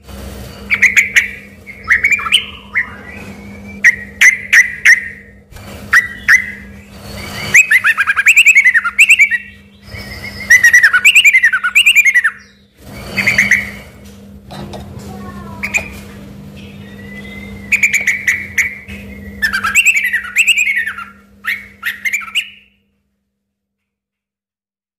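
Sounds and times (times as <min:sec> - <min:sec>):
steady low hum: 0:00.0 - 0:23.8
bird singing chattering phrases: 0:00.6 - 0:13.9, 0:15.5 - 0:22.8.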